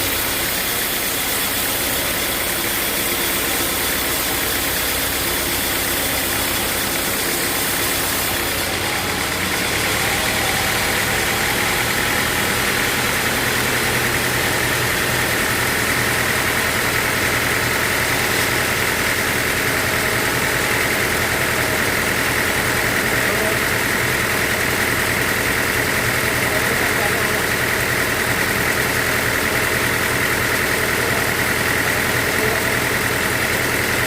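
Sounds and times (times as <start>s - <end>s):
high bright machine noise: 0.0s - 34.0s
sawmill machinery drone: 0.0s - 34.0s.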